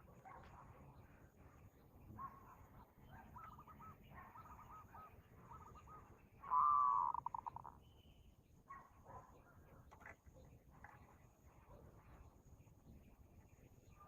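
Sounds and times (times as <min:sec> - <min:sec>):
bird calling: 0:03.2 - 0:07.8.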